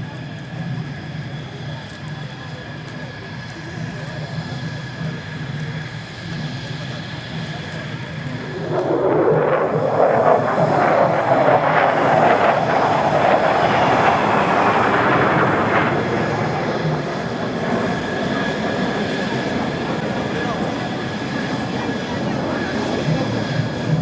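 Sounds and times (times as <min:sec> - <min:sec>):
jet flying past: 0:06.4 - 0:24.0
falling jet whine: 0:07.3 - 0:24.0.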